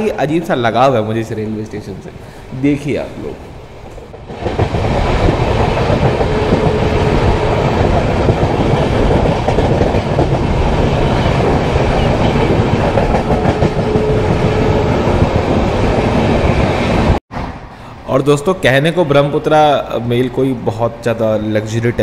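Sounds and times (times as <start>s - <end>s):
train wheels clattering on rails: 3.8s - 16.0s.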